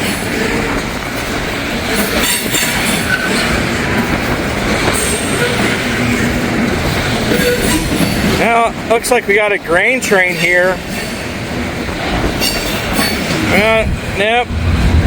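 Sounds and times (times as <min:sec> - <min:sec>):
wind buffeting microphone: 0:00.0 - 0:08.9, 0:10.8 - 0:15.0
freight train rumbling past: 0:00.0 - 0:15.0
wheel squeals: 0:07.3 - 0:08.3.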